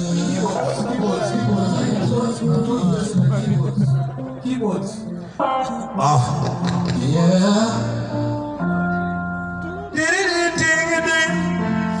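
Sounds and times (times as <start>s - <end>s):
keyboard playing held chords: 0.0s - 12.0s
person singing: 5.4s - 12.0s.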